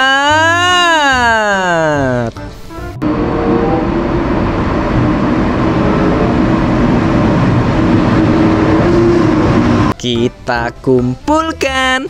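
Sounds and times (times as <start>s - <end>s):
high-speed train rushing past: 2.5s - 10.0s.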